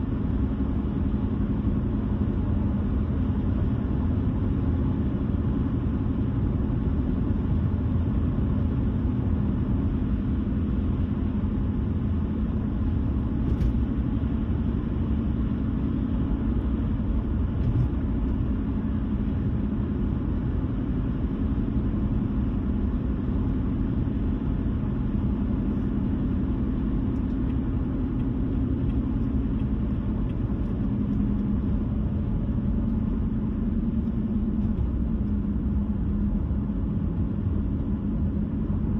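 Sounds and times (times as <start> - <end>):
car tyres and engine rumble: 0.0 - 38.9.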